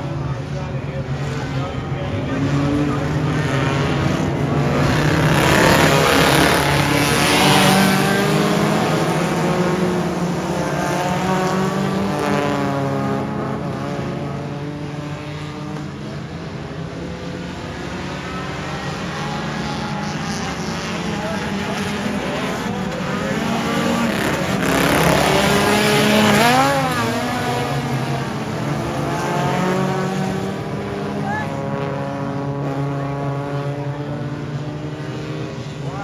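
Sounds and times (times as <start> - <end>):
race car engines: 0.0 - 36.0.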